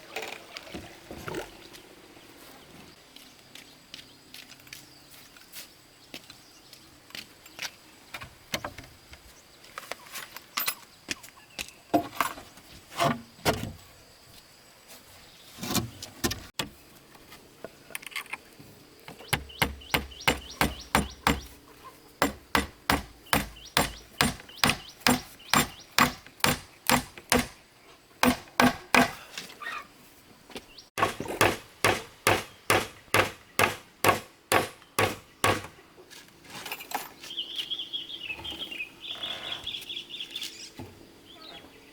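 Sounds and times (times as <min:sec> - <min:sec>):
hand tool striking: 0:19.2 - 0:21.5, 0:22.2 - 0:27.6, 0:28.2 - 0:29.3, 0:31.0 - 0:35.7.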